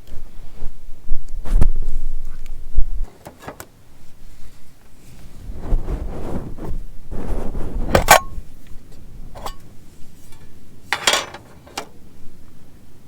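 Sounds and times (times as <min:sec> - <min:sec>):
handling rustling: 0:03.0 - 0:12.0
metal being set down: 0:09.4 - 0:12.0
sharp knocks and clinks: 0:10.3 - 0:12.0.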